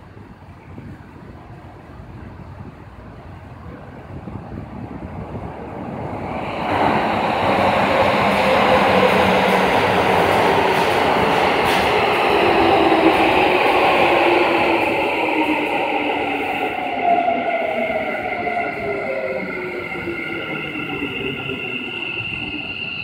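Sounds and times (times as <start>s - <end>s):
train wheels rumbling on rails: 0.3s - 23.0s.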